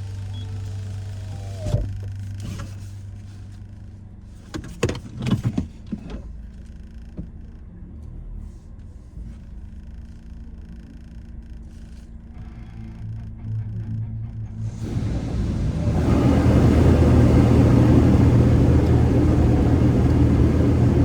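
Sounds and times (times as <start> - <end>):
car wash machinery hum: 0.0 - 7.2, 11.4 - 21.0.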